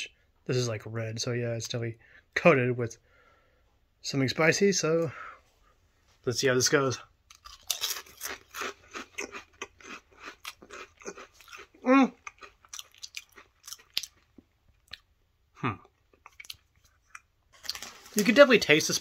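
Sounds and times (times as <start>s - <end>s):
potato chip crunching: 7.3s - 15.1s, 16.1s - 19.0s.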